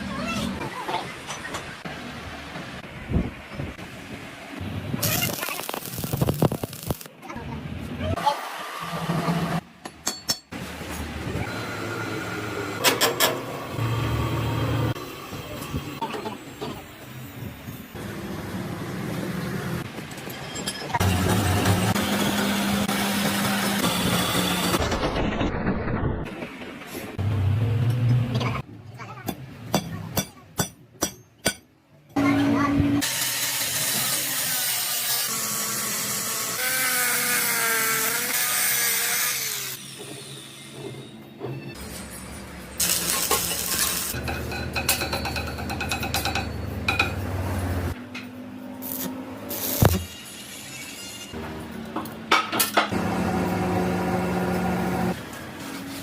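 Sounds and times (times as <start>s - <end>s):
workshop machinery humming: 39.2s - 56.0s.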